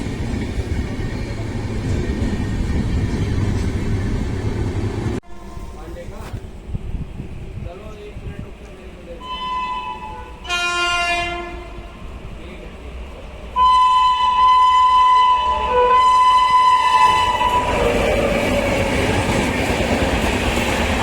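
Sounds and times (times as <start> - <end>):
train roar and wheel clatter: 0.0 - 21.0
train horn blasts: 9.2 - 12.0, 13.6 - 17.8.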